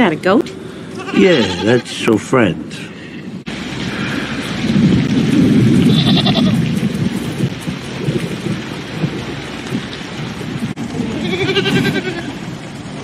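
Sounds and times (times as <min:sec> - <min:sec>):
heavy rain: 0:00.8 - 0:13.0
goat bleating: 0:01.0 - 0:02.0, 0:05.9 - 0:06.6, 0:11.1 - 0:12.4
rumbling thunder: 0:03.4 - 0:13.0.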